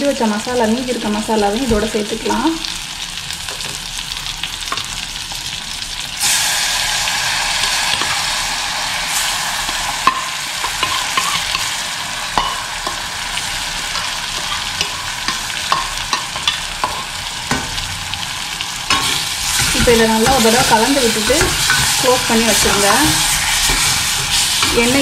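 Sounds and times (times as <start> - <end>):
vegetables sizzling in oil: 0.0 - 25.0
metal spoon clinking and scraping: 9.7 - 11.7, 12.4 - 13.1, 13.8 - 17.2, 18.9 - 25.0.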